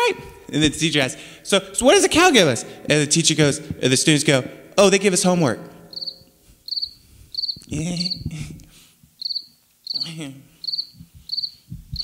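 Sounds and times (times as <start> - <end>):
cricket chirping: 5.8 - 8.3, 9.2 - 12.0.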